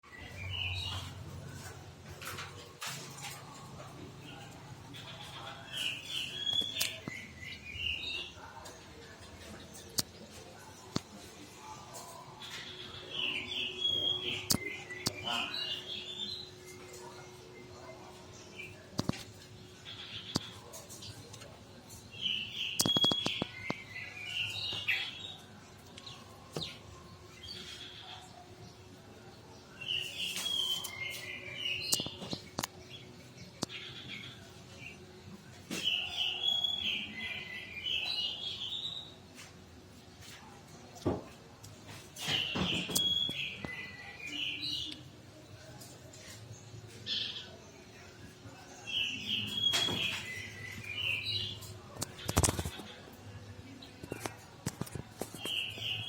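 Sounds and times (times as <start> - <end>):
songbird chirping and twittering: 0.0 - 56.0
bird singing: 5.0 - 8.4, 12.0 - 18.8, 22.1 - 28.3, 35.7 - 39.1, 42.2 - 45.1, 47.0 - 53.0.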